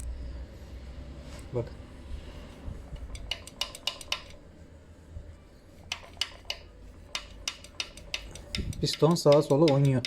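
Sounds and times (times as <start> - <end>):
piston skirt clacking against cylinder: 3.0 - 4.4, 5.8 - 10.0.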